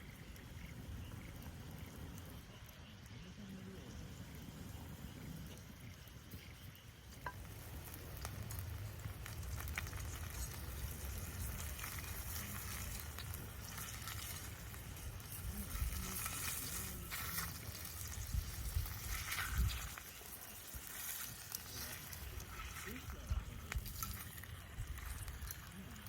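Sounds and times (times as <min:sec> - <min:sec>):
food sizzling in a pan: 0:00.0 - 0:26.0
oil pops and crackles: 0:05.4 - 0:26.0.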